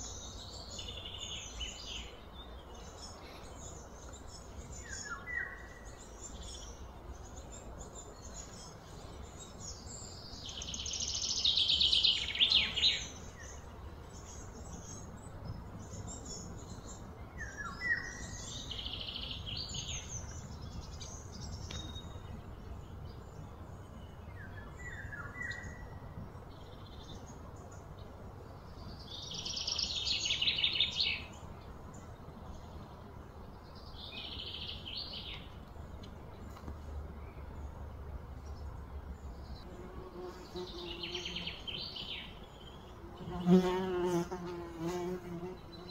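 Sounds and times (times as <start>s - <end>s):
steady background noise: 0.0s - 45.9s.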